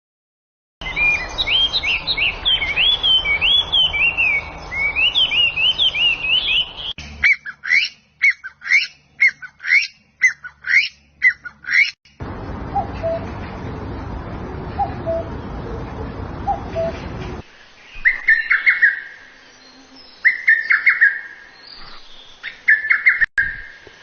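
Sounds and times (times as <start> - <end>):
bird sharp calls: 0.8 - 12.0, 12.7 - 13.3, 14.7 - 19.2, 19.8 - 23.8
bird song whistled notes: 0.8 - 12.0, 12.7 - 13.3, 14.8 - 15.4, 16.4 - 17.0, 17.8 - 23.8
background hiss: 16.2 - 24.0.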